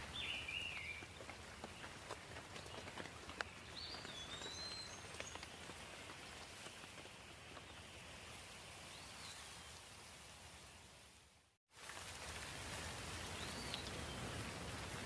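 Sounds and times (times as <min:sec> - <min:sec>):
bird chirping: 0:00.0 - 0:05.8
light rain falling: 0:00.0 - 0:15.0.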